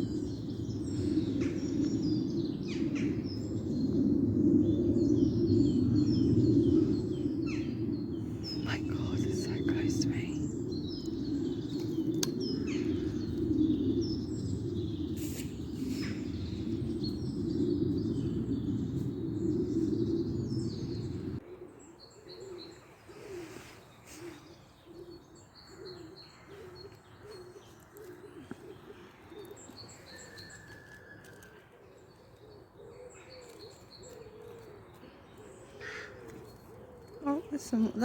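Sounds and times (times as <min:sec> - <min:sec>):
small birds chirping: 0:00.0 - 0:38.0
pigeon cooing: 0:19.6 - 0:38.0.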